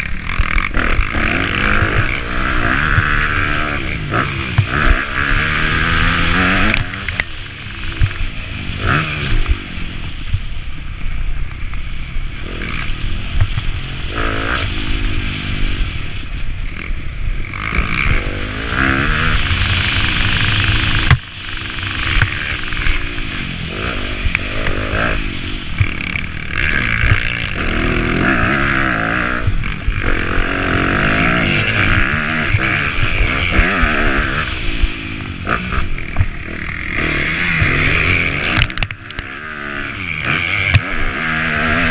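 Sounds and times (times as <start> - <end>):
dirt bike engine revving: 0.0 - 10.6, 12.2 - 41.9.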